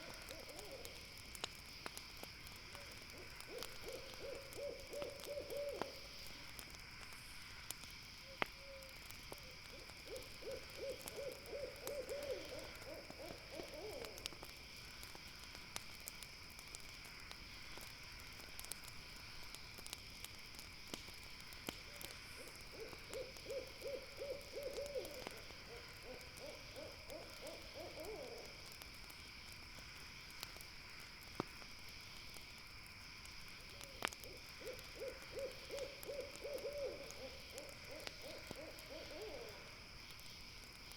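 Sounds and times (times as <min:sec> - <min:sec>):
owl hooting trills: 0:00.0 - 0:01.0, 0:02.8 - 0:06.0, 0:08.3 - 0:14.3, 0:22.4 - 0:28.5, 0:34.2 - 0:39.7
campfire pops: 0:00.0 - 0:38.9.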